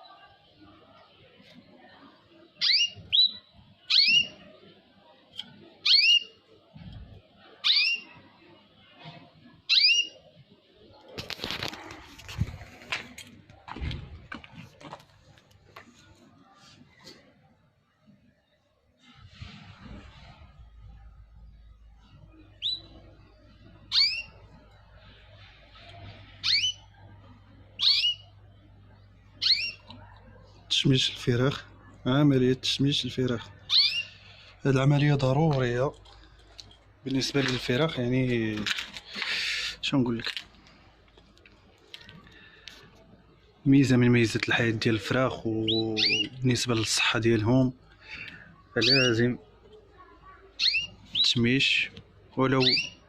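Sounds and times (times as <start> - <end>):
cage bird chirping: 2.4 - 8.7, 9.4 - 11.0, 20.1 - 38.4, 43.4 - 53.0
bird whistling: 2.6 - 4.4, 9.7 - 10.2, 22.6 - 23.0, 23.9 - 24.4, 26.4 - 26.8, 27.8 - 28.3, 29.4 - 29.8, 33.7 - 34.2, 45.6 - 46.3, 48.8 - 49.2, 50.6 - 51.4, 52.6 - 53.0
rustling noise: 11.0 - 17.3, 19.0 - 21.1, 34.6 - 42.2.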